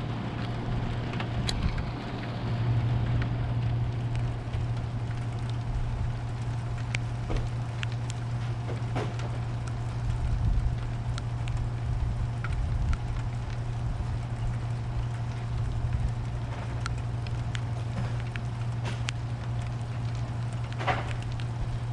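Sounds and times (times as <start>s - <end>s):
low hum: 0.0s - 21.9s
rain hissing: 0.0s - 21.9s.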